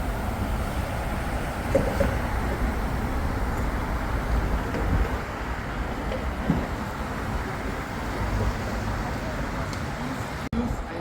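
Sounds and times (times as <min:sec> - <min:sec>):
wind noise: 0:00.0 - 0:07.6
road traffic rumble: 0:00.0 - 0:11.0.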